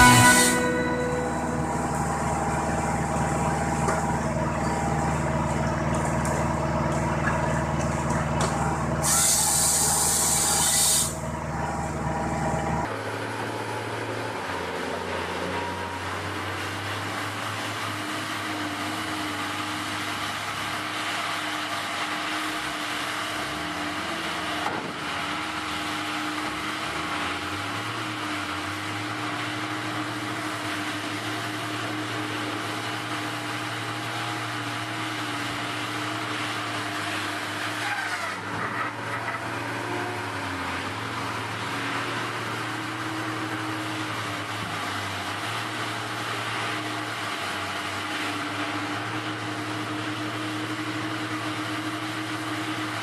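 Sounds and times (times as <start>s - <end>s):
machine humming: 0.0s - 9.1s.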